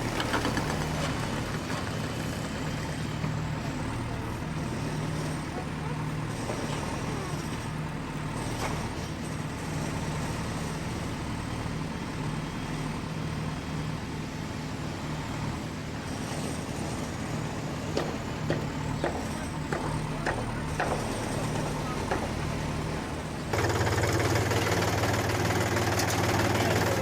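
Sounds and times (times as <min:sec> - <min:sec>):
tractor engine droning: 0:17.1 - 0:27.0.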